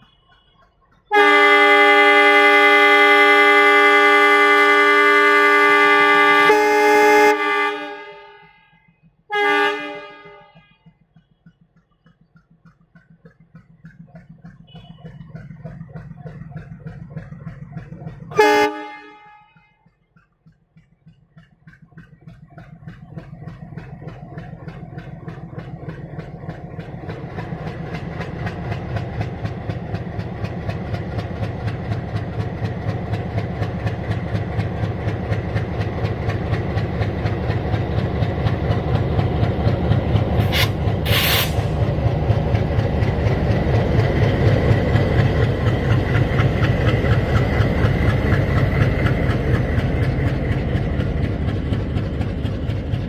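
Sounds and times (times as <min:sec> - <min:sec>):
wheels clicking over rail joints: 0:00.0 - 0:05.4, 0:08.7 - 0:53.0
diesel locomotive engine working: 0:00.0 - 0:53.0
air hiss: 0:40.4 - 0:41.8.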